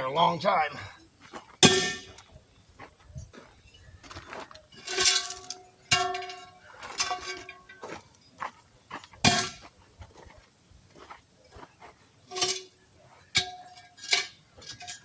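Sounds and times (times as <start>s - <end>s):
metal tool clanging on wheel rim: 1.6s - 2.2s, 4.7s - 7.9s, 9.2s - 9.6s, 12.3s - 15.0s.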